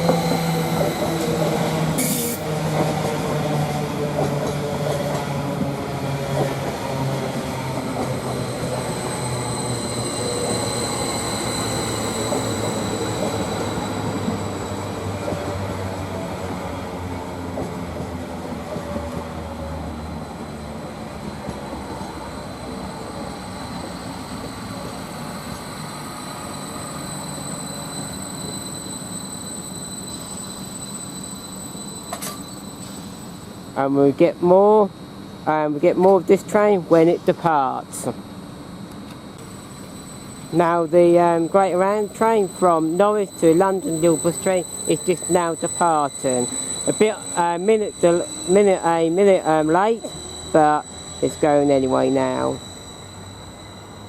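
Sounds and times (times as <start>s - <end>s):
electric train motor braking: 0.0s - 16.5s, 39.4s - 54.0s
train standing hum and whine: 0.0s - 54.0s.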